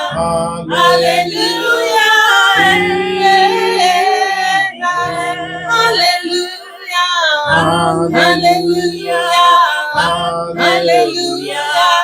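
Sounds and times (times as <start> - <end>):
sustained instrumental backing: 0.0 - 6.2
person singing: 0.0 - 12.0.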